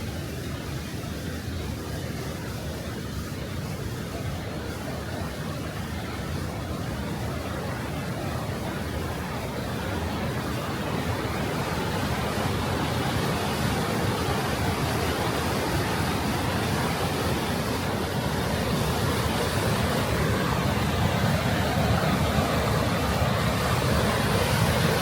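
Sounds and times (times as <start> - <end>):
falling water rushing: 0.0 - 25.0.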